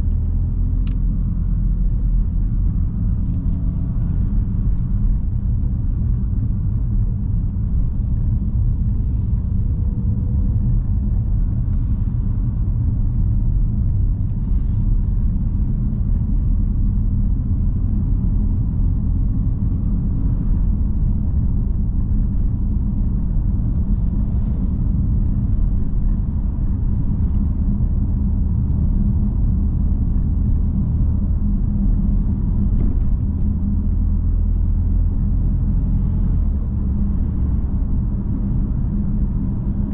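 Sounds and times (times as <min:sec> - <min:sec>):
car engine rumble: 0:00.0 - 0:39.9
road noise: 0:00.0 - 0:39.9.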